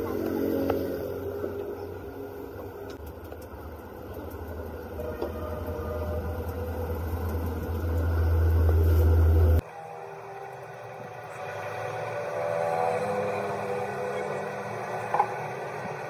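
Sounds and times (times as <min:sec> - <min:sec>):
low mechanical rumble: 0:00.0 - 0:09.6.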